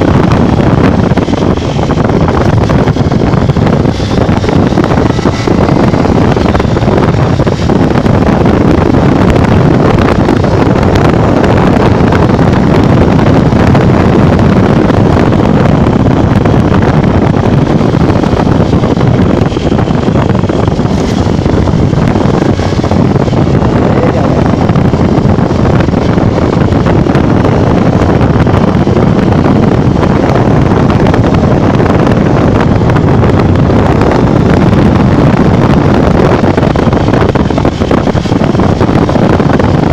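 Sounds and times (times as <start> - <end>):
motorcycle engine running: 0.0 - 39.9
road noise: 0.0 - 39.9
wind buffeting microphone: 0.0 - 39.9.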